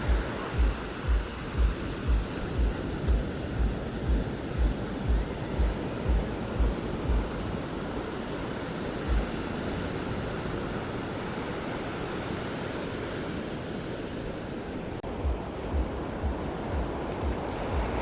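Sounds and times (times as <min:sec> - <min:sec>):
wind thumps on microphone: 0:00.0 - 0:10.7, 0:15.0 - 0:18.0
surf washing onto beach: 0:00.0 - 0:18.0.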